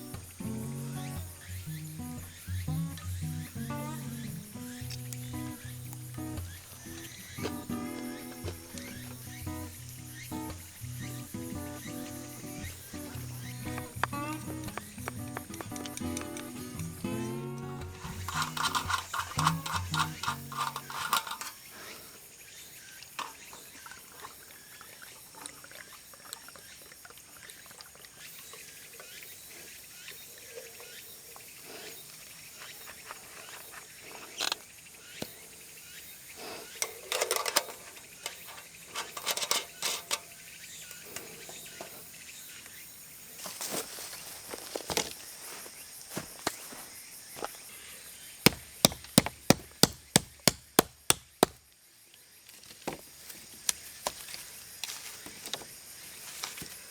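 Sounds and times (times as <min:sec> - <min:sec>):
insect chorus: 0:00.0 - 0:56.9
small clicks and knocks: 0:11.8 - 0:17.0, 0:17.8 - 0:21.6, 0:36.8 - 0:40.4.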